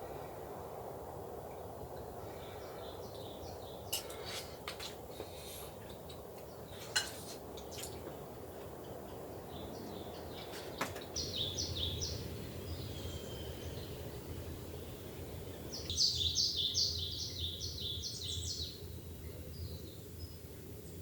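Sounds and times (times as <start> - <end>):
bird chirping: 8.8 - 21.0
low hiss: 11.2 - 21.0.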